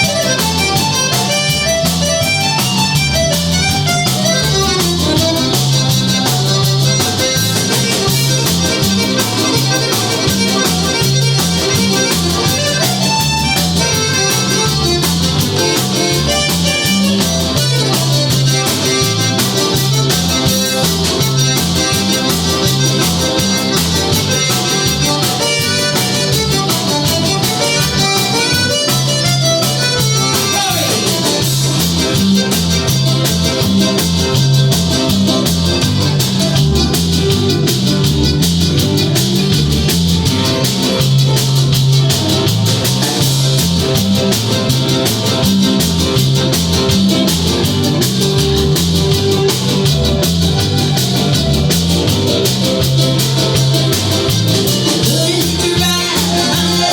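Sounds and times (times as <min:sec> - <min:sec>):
bass and drum kit: 0:00.0 - 0:56.9
live rock band instrumental: 0:00.0 - 0:56.9
sustained lead guitar notes: 0:00.0 - 0:56.9.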